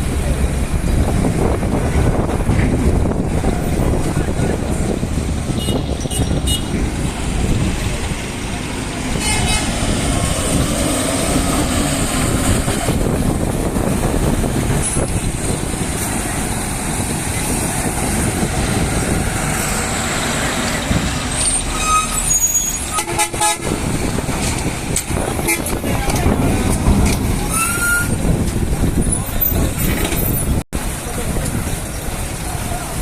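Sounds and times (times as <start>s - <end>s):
truck and bus engines rumbling: 0.0s - 33.0s
vehicle horn toot: 5.6s - 6.8s, 9.1s - 9.8s, 21.8s - 23.8s.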